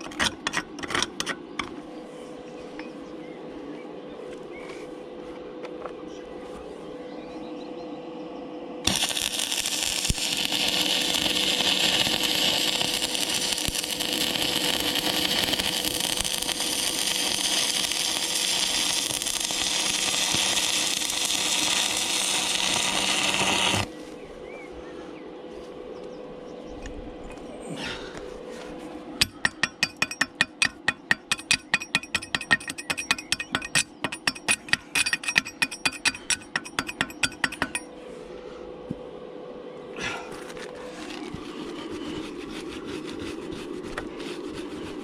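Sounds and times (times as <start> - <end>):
arc welding crackling hiss: 8.9 - 24.0.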